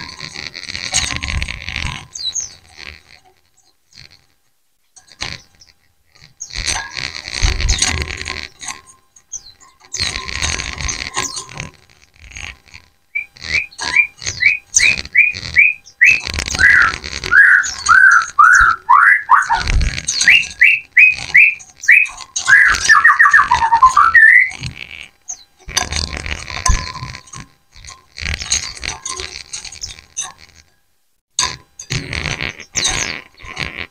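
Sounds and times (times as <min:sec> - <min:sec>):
birds whistling song: 0:13.1 - 0:24.5.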